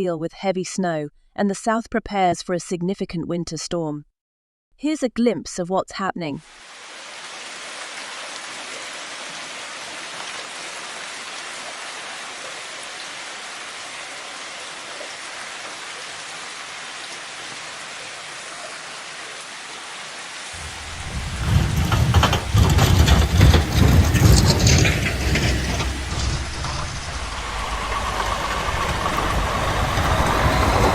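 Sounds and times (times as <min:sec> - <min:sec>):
irregular knocks: 0:20.6 - 0:27.0
gusty low rumble: 0:20.6 - 0:30.9
storm hiss: 0:20.6 - 0:30.9.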